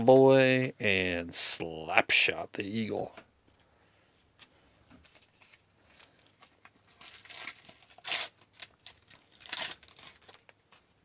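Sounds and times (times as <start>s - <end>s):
wrapper tearing and crinkling: 5.1s - 10.9s.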